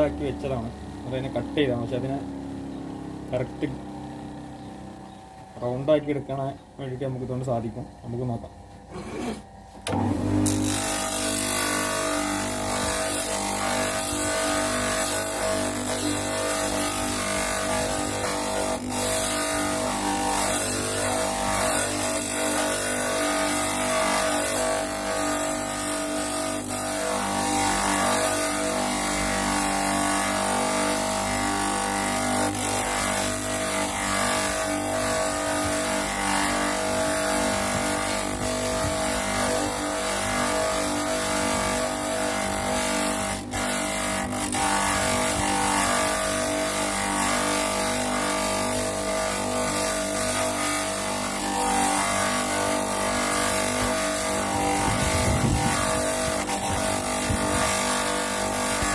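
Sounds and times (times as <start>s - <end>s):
bench grinder grinding wood: 0.0s - 58.9s.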